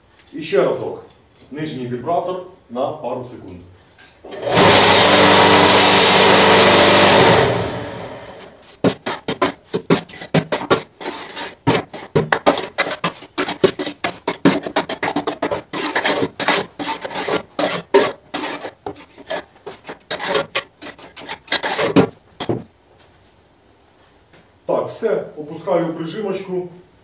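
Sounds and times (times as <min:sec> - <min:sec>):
scraping and knocking on steel mould: 0:08.7 - 0:22.7.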